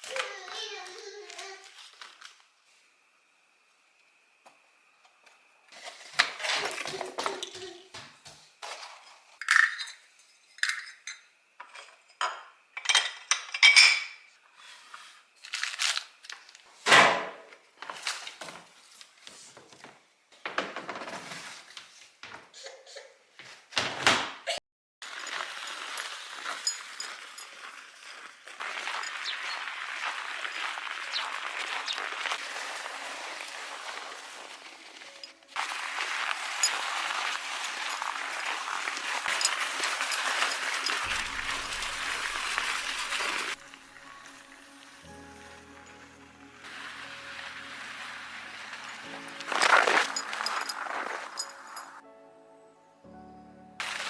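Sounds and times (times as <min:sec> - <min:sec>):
dishes and cutlery clinking: 0:08.6 - 0:14.3, 0:25.0 - 0:29.6, 0:33.1 - 0:43.6, 0:48.7 - 0:52.0.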